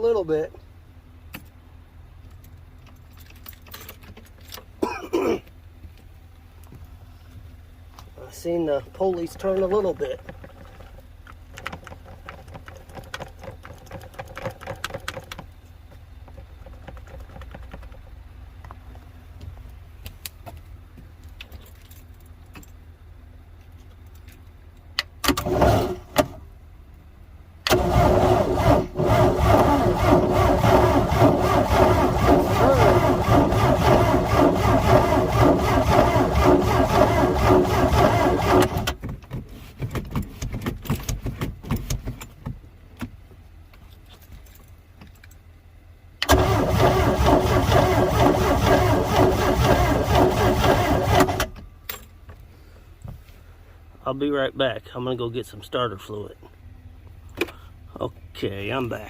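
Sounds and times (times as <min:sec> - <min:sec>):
starter motor cranking engine: 0:25.2 - 0:26.4, 0:27.6 - 0:39.0, 0:46.2 - 0:51.6.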